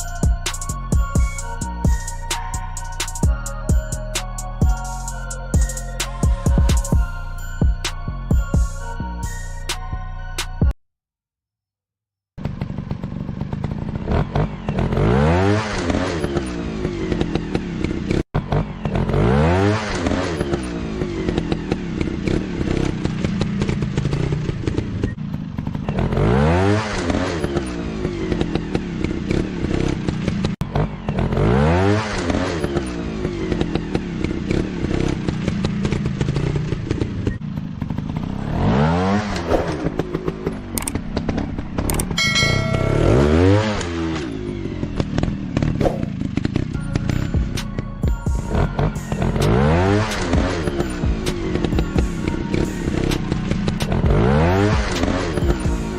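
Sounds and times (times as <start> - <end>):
dirt bike engine revving: 12.4 - 55.9.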